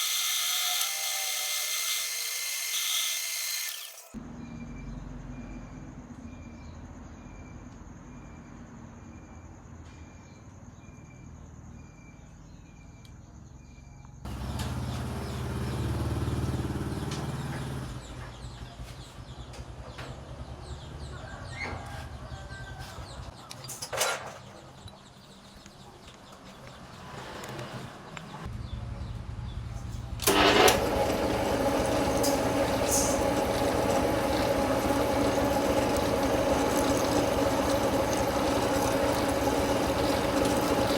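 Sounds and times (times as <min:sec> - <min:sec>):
metal lathe running: 0:00.0 - 0:04.2, 0:30.2 - 0:40.9.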